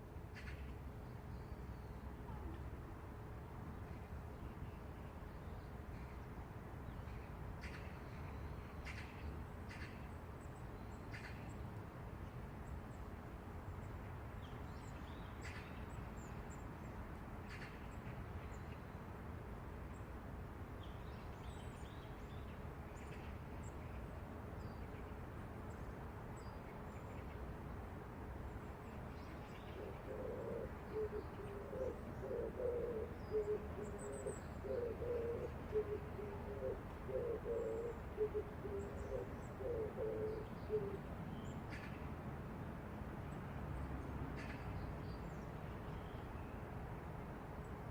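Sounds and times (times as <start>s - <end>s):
low city rumble: 0.0s - 47.9s
pigeon cooing: 29.9s - 41.0s.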